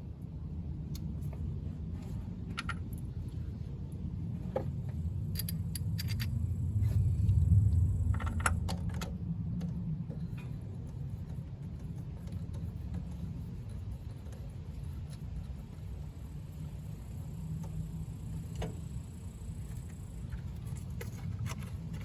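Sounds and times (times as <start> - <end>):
low rumble: 3.2 - 11.8.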